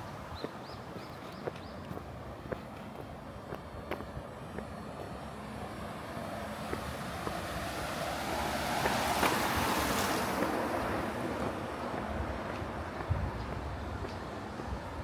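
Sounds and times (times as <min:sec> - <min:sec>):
vehicle passing by: 0:05.3 - 0:14.7.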